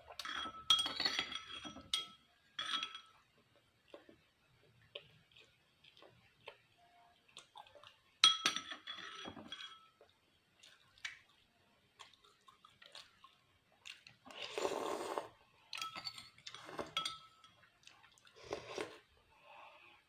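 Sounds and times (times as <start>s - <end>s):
utensil clinking on plate: 0.2s - 3.2s, 8.2s - 10.0s, 15.8s - 17.6s
chewing: 4.8s - 8.1s, 12.0s - 15.3s, 17.6s - 19.1s.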